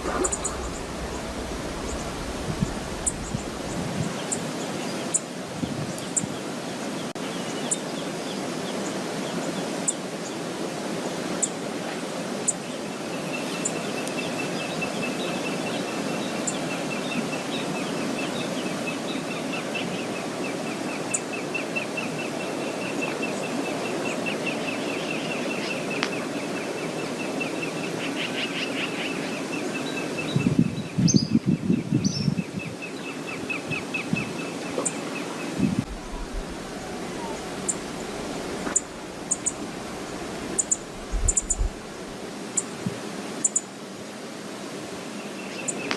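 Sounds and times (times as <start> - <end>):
waterfall rushing: 0.0 - 5.5, 33.4 - 45.1
wind: 0.0 - 45.9
bird trilling: 35.9 - 41.8.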